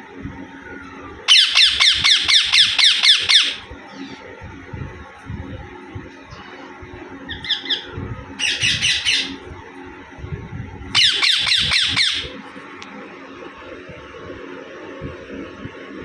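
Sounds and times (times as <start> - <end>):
parakeet harsh calls: 1.3 - 4.2, 7.3 - 9.5, 10.9 - 12.4.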